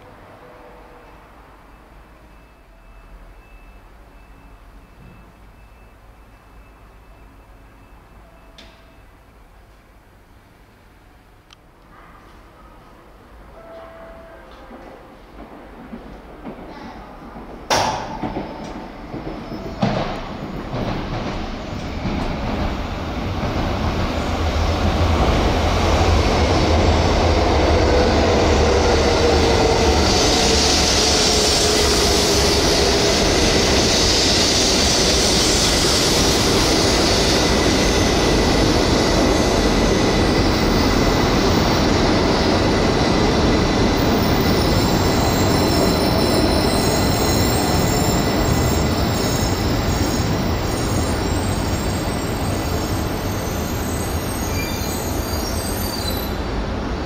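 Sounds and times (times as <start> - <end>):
train wheels rushing on rail: 14.6 - 57.0.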